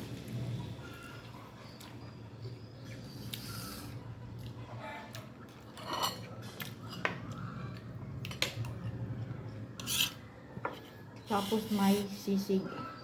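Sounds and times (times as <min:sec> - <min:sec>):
cutlery scraping on plate: 0:05.8 - 0:07.2, 0:09.8 - 0:12.0.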